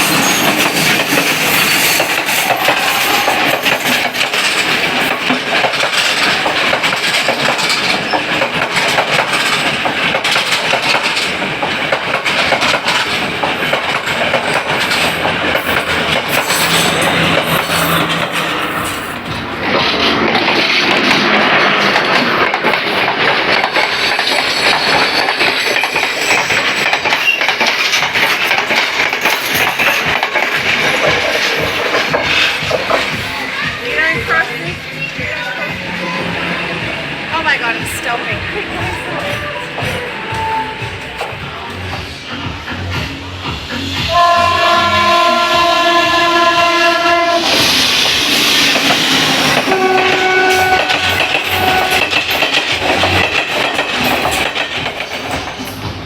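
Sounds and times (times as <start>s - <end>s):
train wheels clattering on rails: 0.0s - 56.0s
train horn blasts: 44.1s - 47.6s, 49.4s - 53.2s.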